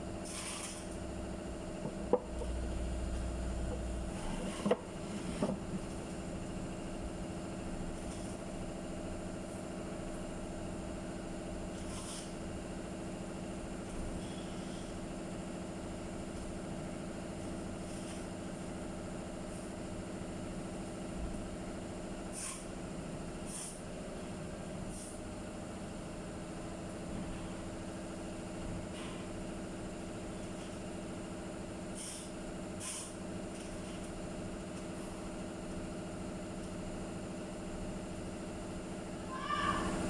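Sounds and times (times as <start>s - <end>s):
machine hum: 1.0s - 8.0s.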